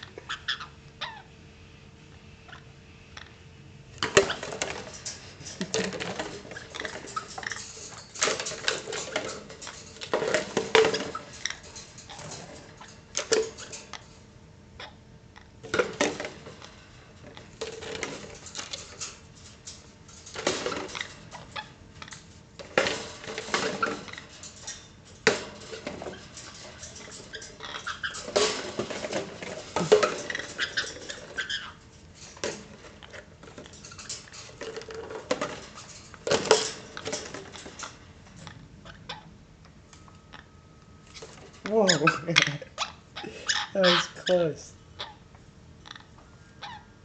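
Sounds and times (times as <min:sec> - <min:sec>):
small hard objects clattering: 0:04.0 - 0:14.1, 0:15.6 - 0:38.4.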